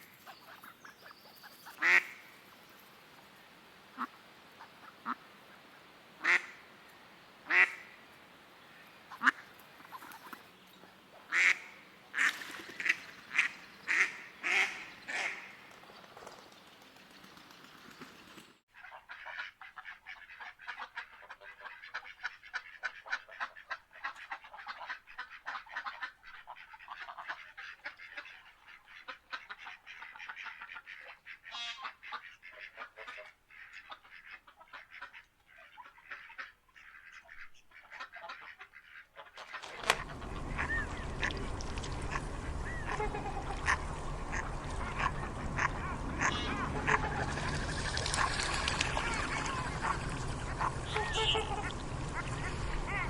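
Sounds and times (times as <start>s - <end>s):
ducks quacking: 0.1s - 2.3s, 6.2s - 6.6s, 7.5s - 8.0s, 9.1s - 10.5s, 11.2s - 15.6s, 18.7s - 53.0s
chatter of many birds: 39.6s - 53.0s.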